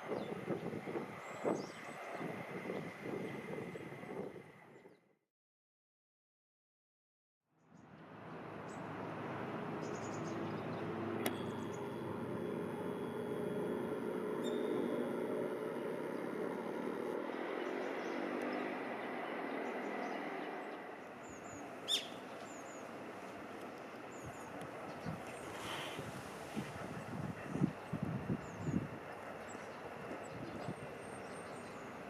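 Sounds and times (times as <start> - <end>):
train rumbling along track: 0.0 - 4.6, 22.4 - 32.0
faint bird chirps: 14.4 - 14.9, 21.2 - 22.9.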